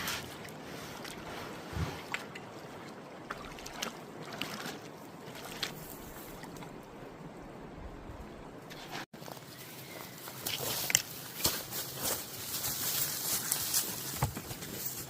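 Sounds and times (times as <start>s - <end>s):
water lapping and splashing: 0.0s - 9.1s.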